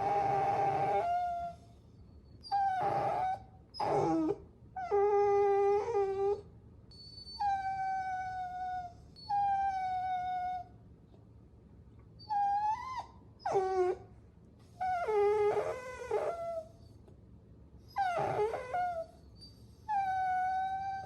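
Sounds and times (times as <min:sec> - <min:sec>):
puppies whining: 0:00.0 - 0:10.7, 0:12.2 - 0:14.1, 0:14.7 - 0:17.0, 0:17.9 - 0:21.0.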